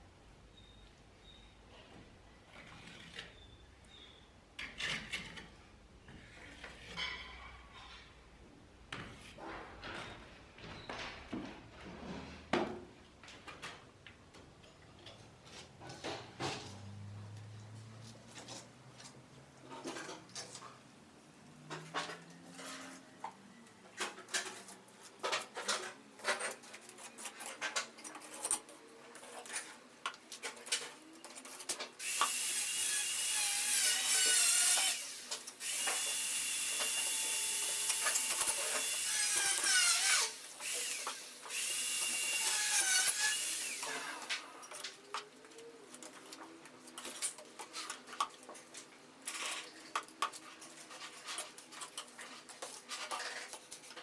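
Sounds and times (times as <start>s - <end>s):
knocks and scrapes: 4.6s - 8.2s, 8.9s - 21.0s, 21.6s - 31.8s, 45.9s - 54.0s
power tool whining: 32.0s - 44.6s.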